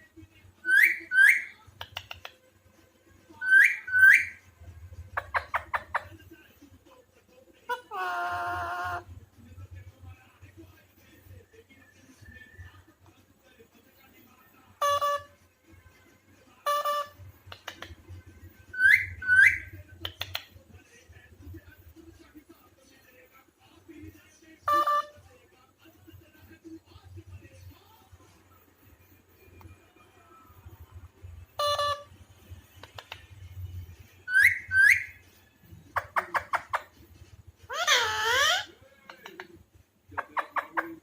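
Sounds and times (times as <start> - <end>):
parakeet whistle: 0.6 - 1.6, 3.4 - 4.4, 18.7 - 19.7, 31.6 - 32.1, 34.3 - 35.2
parakeet clicks: 1.8 - 2.4
parakeet calls rising in pitch: 34.3 - 35.1, 37.7 - 38.7
parakeet rising whistles: 34.3 - 35.2.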